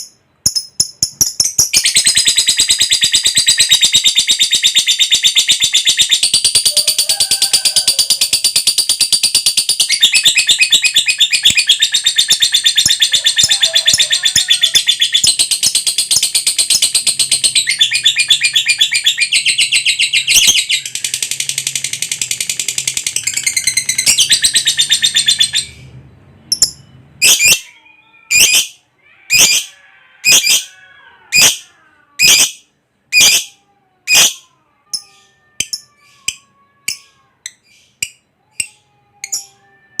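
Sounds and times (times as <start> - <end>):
lovebird chattering trill: 0.0 - 25.8.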